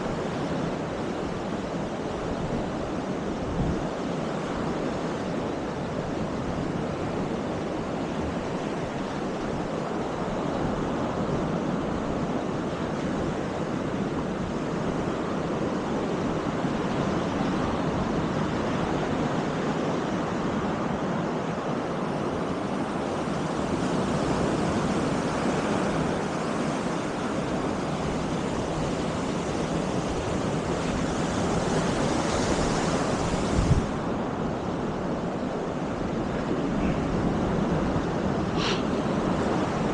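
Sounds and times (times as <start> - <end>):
surf washing onto beach: 0.0 - 39.9
wind buffeting microphone: 24.1 - 39.9.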